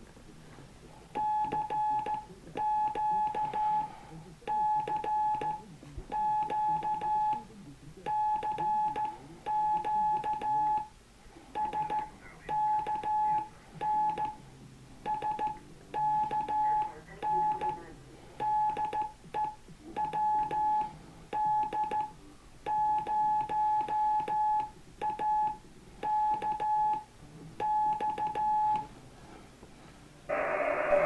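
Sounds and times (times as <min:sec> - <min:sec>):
faint radio band noise: 0:00.0 - 0:31.0
morse code beeps: 0:01.2 - 0:03.9, 0:04.5 - 0:07.4, 0:08.1 - 0:10.9, 0:11.6 - 0:14.4, 0:15.0 - 0:17.8, 0:18.4 - 0:22.1, 0:22.7 - 0:28.9.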